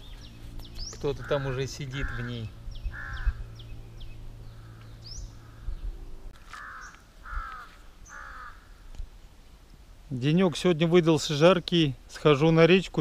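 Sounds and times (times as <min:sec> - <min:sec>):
bird calling: 0:00.0 - 0:09.0
other birds chirping: 0:00.0 - 0:09.0.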